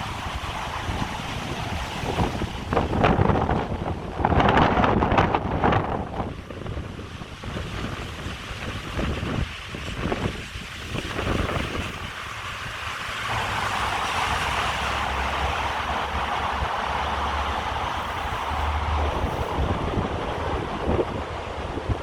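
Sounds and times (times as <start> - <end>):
wind buffeting microphone: 0.0 - 22.0
river water rushing: 8.4 - 22.0.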